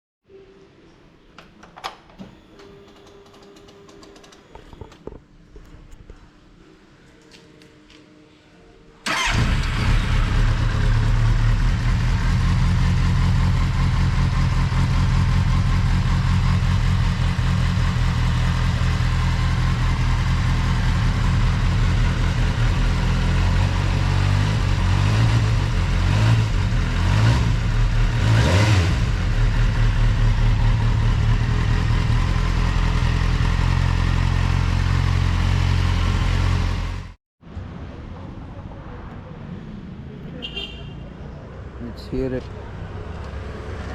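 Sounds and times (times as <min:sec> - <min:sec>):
motorcycle engine idling: 0:09.1 - 0:23.9, 0:29.1 - 0:37.0.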